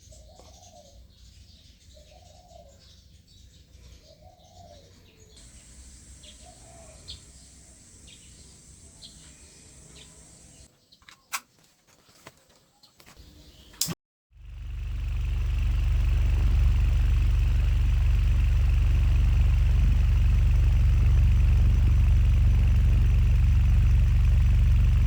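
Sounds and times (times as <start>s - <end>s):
high bird chirps: 4.6s - 10.7s, 14.5s - 25.0s
low arched bird call: 5.4s - 10.7s, 14.4s - 25.0s
low background rumble: 14.4s - 25.0s.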